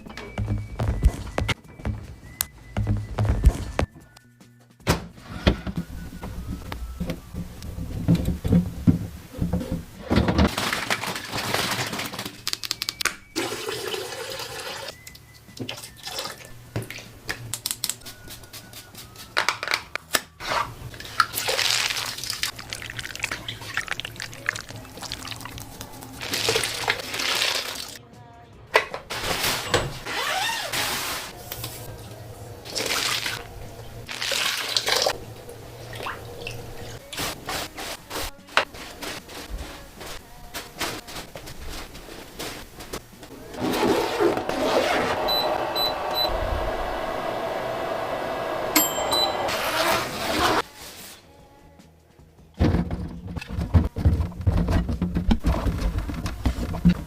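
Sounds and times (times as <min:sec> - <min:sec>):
background music: 0:00.0 - 0:08.1, 0:12.3 - 0:41.3, 0:43.0 - 0:57.0
water running and splashing: 0:21.1 - 0:28.0, 0:34.1 - 0:37.0.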